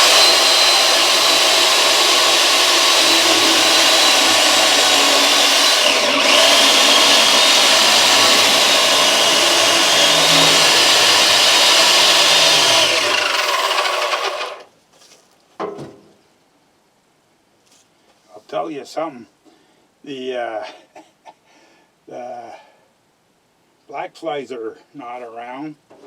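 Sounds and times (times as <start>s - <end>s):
chainsaw cutting wood: 0.0s - 14.7s.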